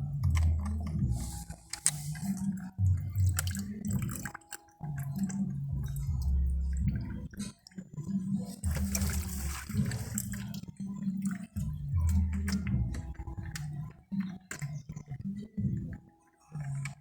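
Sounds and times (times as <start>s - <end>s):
water dripping and spattering: 0.2s - 7.3s, 8.5s - 13.7s.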